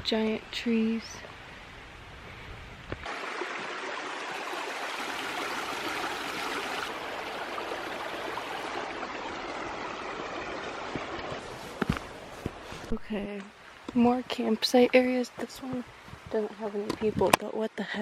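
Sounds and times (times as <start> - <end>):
creek rushing over rocks: 3.0 - 17.4.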